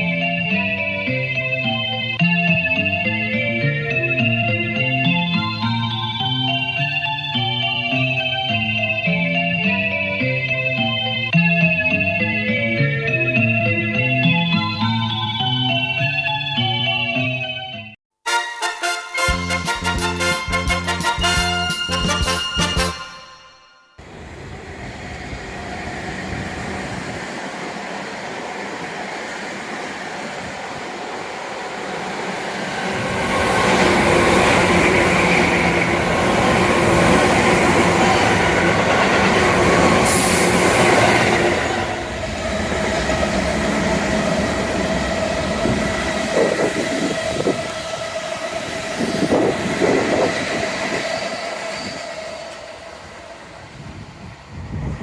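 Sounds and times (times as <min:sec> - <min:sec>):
electric train passing: 0:00.0 - 0:16.6, 0:24.0 - 0:55.0
train knocks: 0:25.2 - 0:53.2.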